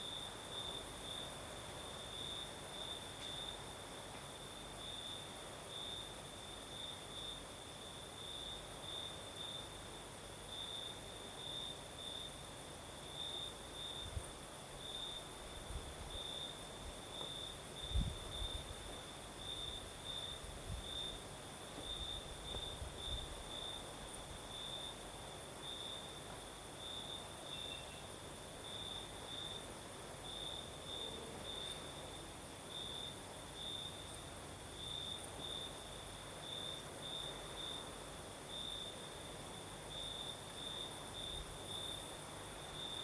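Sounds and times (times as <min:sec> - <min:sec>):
crickets chirping: 0:00.0 - 0:43.0
wind rumbling on microphone: 0:15.5 - 0:17.0, 0:17.8 - 0:18.9, 0:19.7 - 0:21.2, 0:21.8 - 0:24.4.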